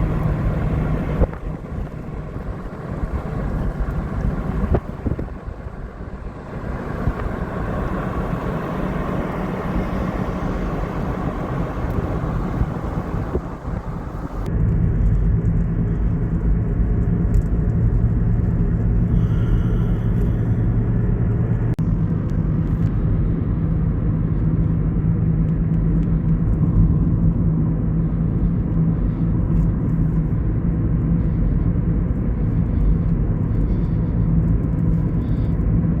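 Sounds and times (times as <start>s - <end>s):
storm noise rushing: 0.0s - 14.5s
low vehicle rumble: 0.0s - 36.0s.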